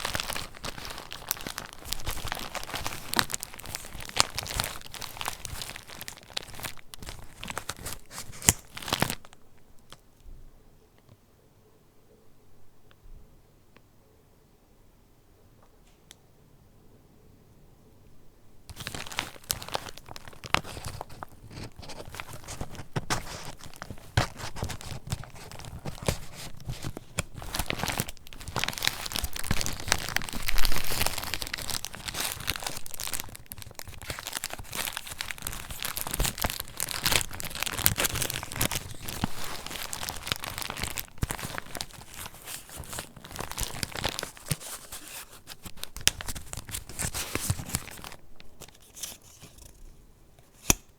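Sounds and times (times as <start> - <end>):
paper pages rustling: 0.0 - 9.2, 18.7 - 49.8.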